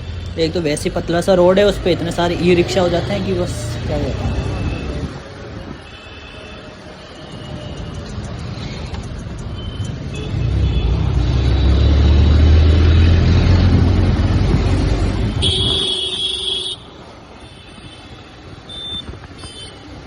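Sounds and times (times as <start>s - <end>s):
vehicle horn: 15.3s - 18.1s.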